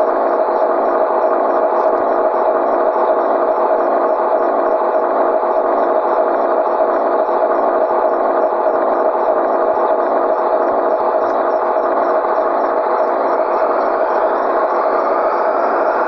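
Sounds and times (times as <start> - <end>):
truck diesel engine running: 9.6 - 16.0.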